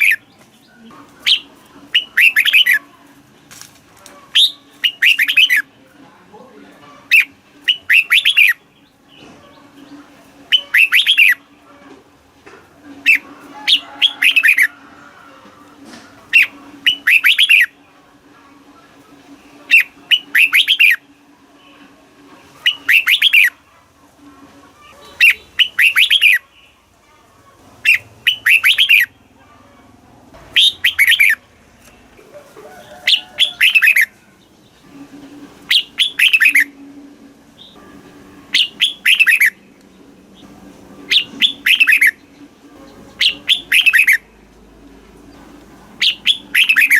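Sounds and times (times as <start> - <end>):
bird singing warbling phrases: 0.0 - 2.9, 4.3 - 5.7, 7.0 - 9.3, 10.0 - 11.6, 13.0 - 14.7, 16.3 - 17.8, 19.7 - 21.1, 22.6 - 23.6, 24.8 - 26.8, 27.8 - 29.2, 30.5 - 31.5, 33.0 - 34.9, 35.6 - 36.8, 38.5 - 39.8, 41.1 - 44.4, 46.0 - 46.9.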